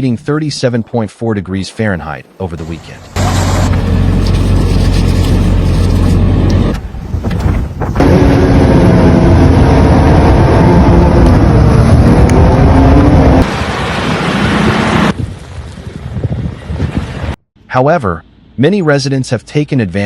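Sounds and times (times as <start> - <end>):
car engine humming: 2.7 - 13.6
engine at high revs: 8.0 - 15.2.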